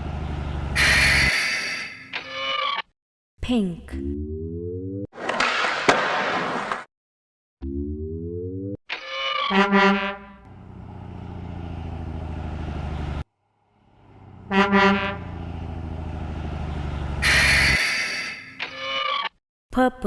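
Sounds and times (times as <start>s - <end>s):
truck engine running: 0.0s - 1.3s, 10.4s - 17.8s
truck horn honking: 0.6s - 2.0s, 9.5s - 10.6s, 14.1s - 15.7s, 17.1s - 18.4s.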